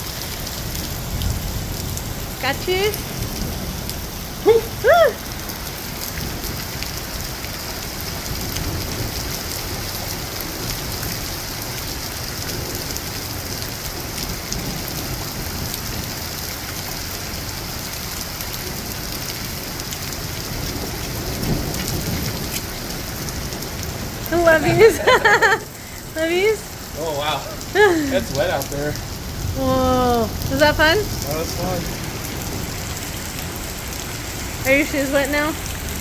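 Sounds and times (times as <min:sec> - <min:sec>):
raindrops ticking on surfaces: 0:00.0 - 0:36.0
steady rain hiss: 0:00.0 - 0:36.0
person whooping: 0:04.5 - 0:05.2.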